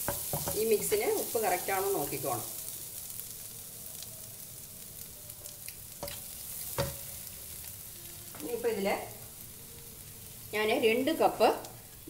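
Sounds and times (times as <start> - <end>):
wooden spatula knocking pan: 0.0 - 0.7, 6.0 - 7.1
food sizzling in a pan: 0.0 - 12.0.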